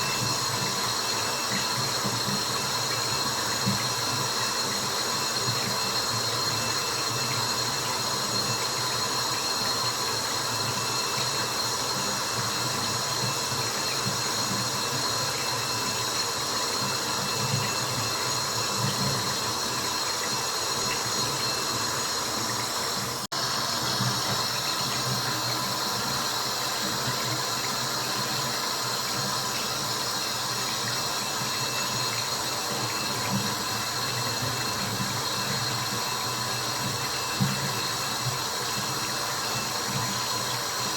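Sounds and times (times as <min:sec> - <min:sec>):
rushing water white noise: 0:17.0 - 0:40.9.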